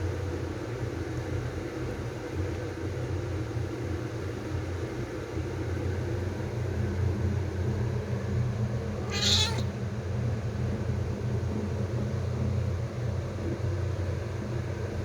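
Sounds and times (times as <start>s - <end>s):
kitten meowing: 9.0s - 9.7s.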